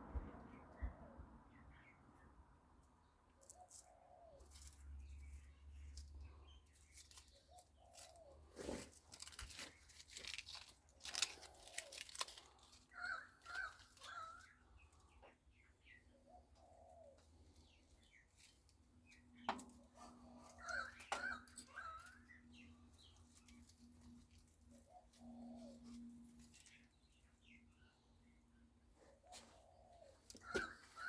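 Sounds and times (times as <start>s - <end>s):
birds chirping: 11.1s - 31.0s.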